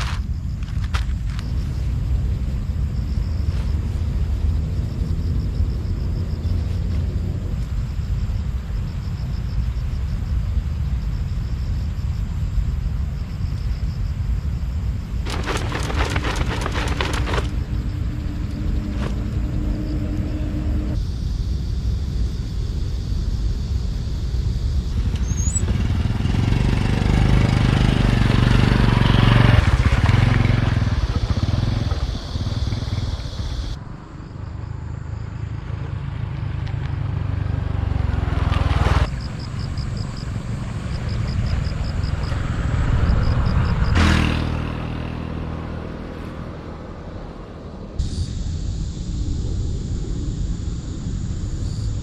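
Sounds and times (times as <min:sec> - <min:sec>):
small motorcycle engine running: 0:15.2 - 0:21.0, 0:24.9 - 0:33.8.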